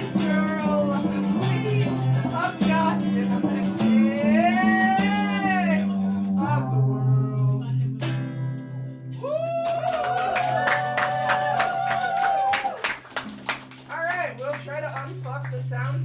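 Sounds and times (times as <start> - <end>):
person singing long notes: 0.0 - 8.0
bass line: 0.0 - 9.4
guitar: 0.0 - 16.0.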